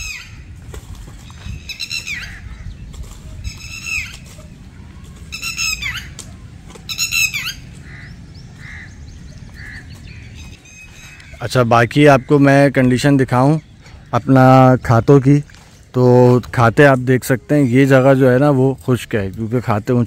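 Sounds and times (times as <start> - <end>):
bird squawking: 0.0 - 0.5, 1.3 - 14.6.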